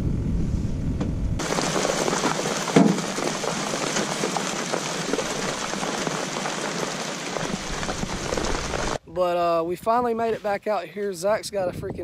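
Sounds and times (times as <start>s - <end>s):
heavy rain on pond water: 1.4s - 9.0s.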